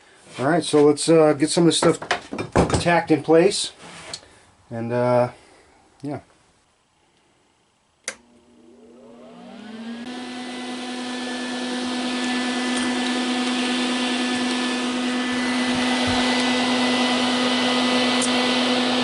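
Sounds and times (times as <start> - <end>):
angle grinder whine: 8.1 - 19.0.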